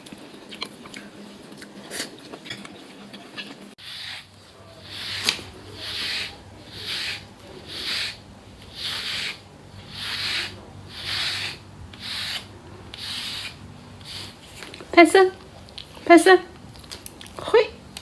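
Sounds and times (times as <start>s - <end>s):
hissing rubbing strokes: 3.8s - 14.6s.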